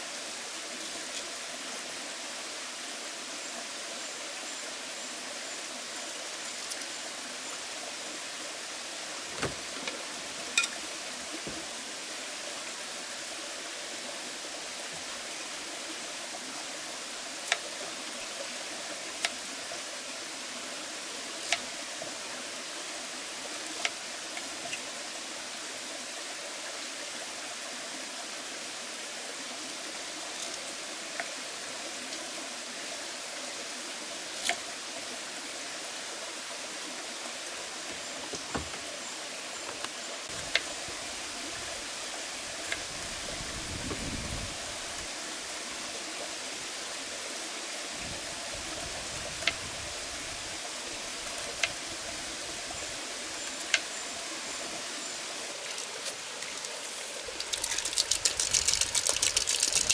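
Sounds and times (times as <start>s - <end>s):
potatoes sizzling in hot oil: 55.6s - 59.9s.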